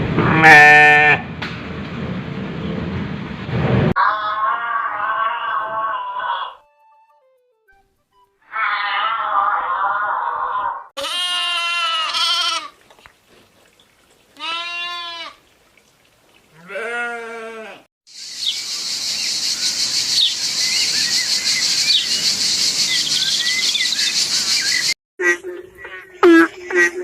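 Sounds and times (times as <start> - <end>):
goat bleating: 0.2 - 1.2, 11.0 - 12.8, 14.4 - 15.4, 16.5 - 17.9.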